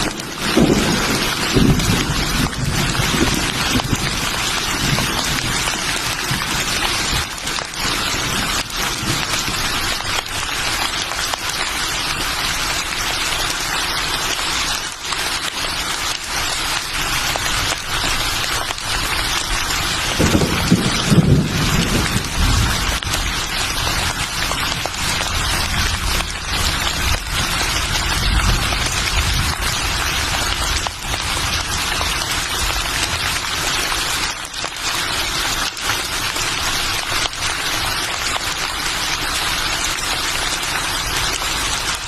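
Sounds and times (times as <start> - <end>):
thunder rumble: 0.0 - 7.4, 19.9 - 31.3
steady rain: 0.0 - 42.0.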